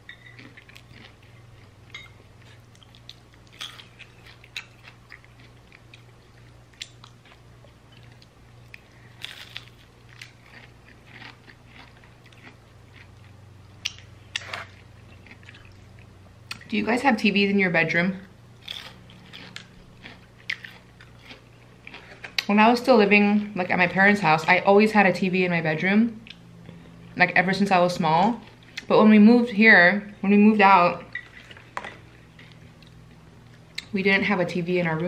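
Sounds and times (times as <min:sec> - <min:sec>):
faint low hum: 0:00.0 - 0:35.0
crunchy chewing: 0:00.1 - 0:16.7, 0:18.6 - 0:22.5, 0:31.1 - 0:33.9.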